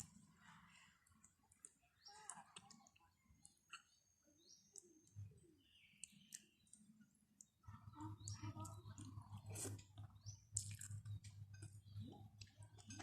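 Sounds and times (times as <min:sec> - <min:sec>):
chewing noodles: 0:06.0 - 0:13.0.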